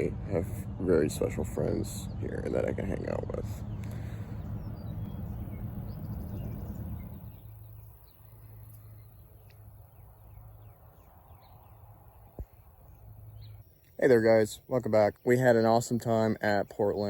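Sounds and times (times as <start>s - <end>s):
steady low hum: 0.0s - 17.0s
faint bird chirps: 3.4s - 17.0s.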